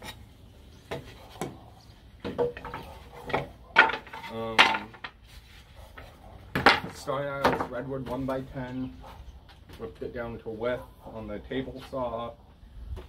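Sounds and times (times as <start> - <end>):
wooden boards clacking together: 2.2 - 5.2, 6.0 - 8.2.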